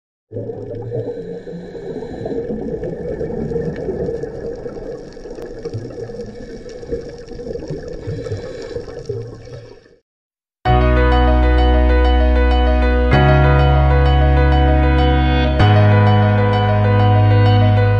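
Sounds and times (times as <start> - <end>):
muffled underwater rush: 0.3 - 10.0.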